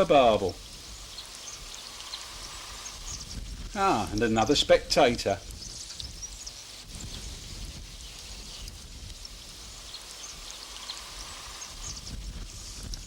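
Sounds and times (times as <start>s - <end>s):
wind rumble on microphone: 0.0s - 13.0s
flowing river water: 1.1s - 3.3s.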